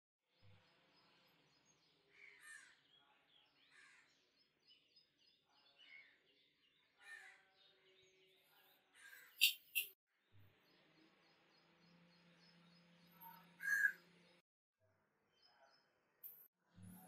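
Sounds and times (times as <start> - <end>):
harsh bird calls: 9.0 - 9.9, 13.2 - 14.1.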